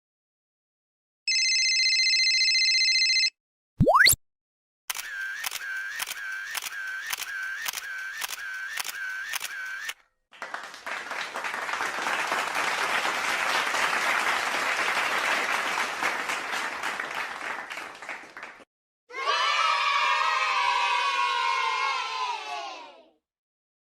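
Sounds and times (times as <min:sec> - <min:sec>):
applause: 0:10.3 - 0:18.7.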